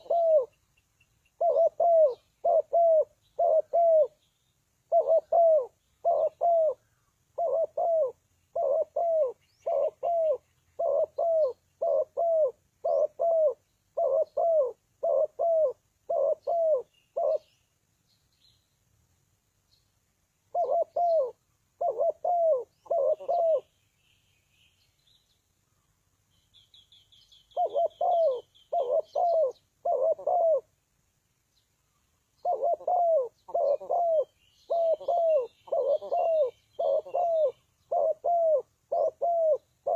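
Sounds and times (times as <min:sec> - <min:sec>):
dove cooing: 0:00.0 - 0:00.6, 0:01.3 - 0:04.2, 0:04.9 - 0:17.6, 0:20.5 - 0:23.7, 0:27.5 - 0:30.8, 0:32.4 - 0:39.9.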